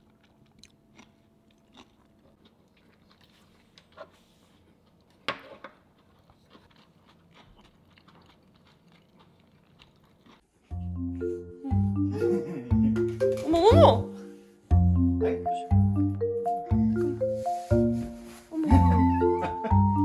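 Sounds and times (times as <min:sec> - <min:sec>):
quiet chewing: 0:00.0 - 0:10.6
mallet instrument music: 0:10.7 - 0:20.0.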